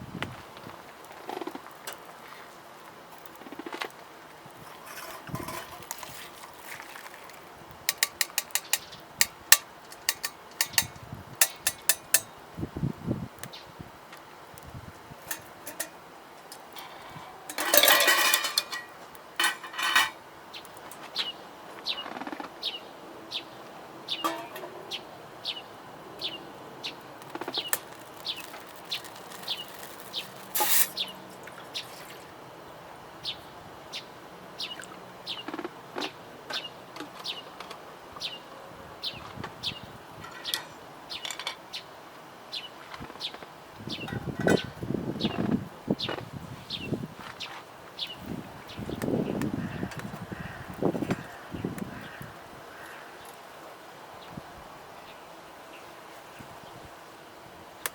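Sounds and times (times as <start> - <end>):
cooking gear clicking and clattering: 4.5 - 12.3, 15.2 - 16.9, 17.5 - 20.2, 24.2 - 24.8, 27.2 - 31.1.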